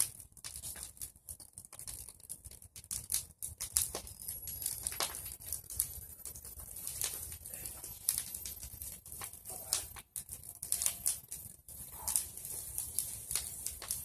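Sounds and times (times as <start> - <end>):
bonfire crackling and popping: 0.0 - 14.0.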